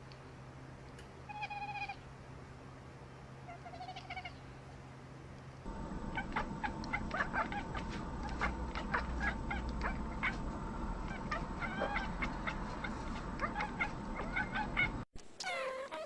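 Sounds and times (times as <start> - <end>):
cat meowing: 1.3 - 2.0, 3.5 - 4.4, 11.1 - 12.6, 13.4 - 16.0.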